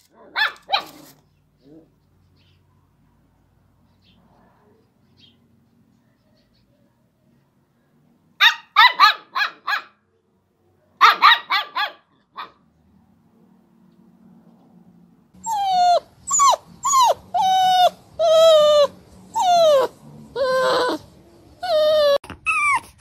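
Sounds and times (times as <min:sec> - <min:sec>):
puppy yapping: 0:00.1 - 0:01.9, 0:08.4 - 0:10.0, 0:11.0 - 0:12.6, 0:15.4 - 0:23.0
dog whining cries: 0:15.4 - 0:23.0.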